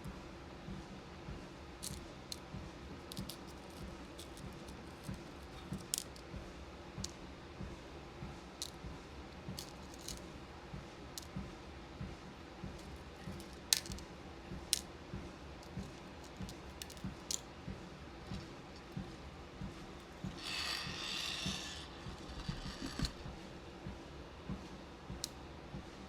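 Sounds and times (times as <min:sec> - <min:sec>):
beads and plastic containers clicking: 0:01.8 - 0:02.4, 0:03.0 - 0:06.2, 0:09.5 - 0:10.2, 0:13.1 - 0:14.0, 0:15.6 - 0:17.4.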